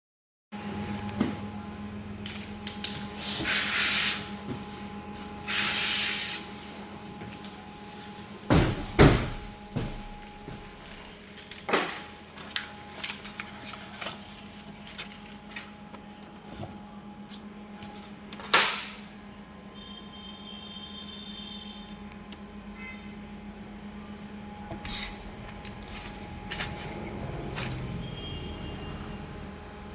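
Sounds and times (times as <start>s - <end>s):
packaging rustling: 10.5s - 16.3s.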